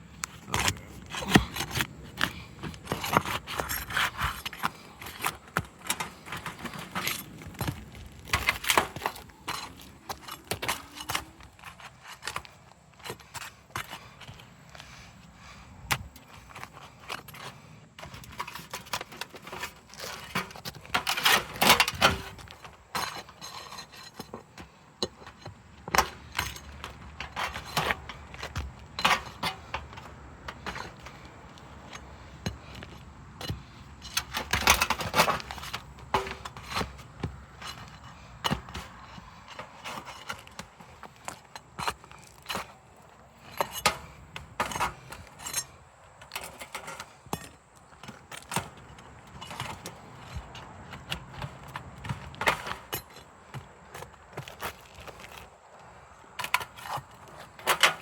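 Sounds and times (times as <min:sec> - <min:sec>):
shingles scraping and rubbing: 0:00.2 - 0:58.0.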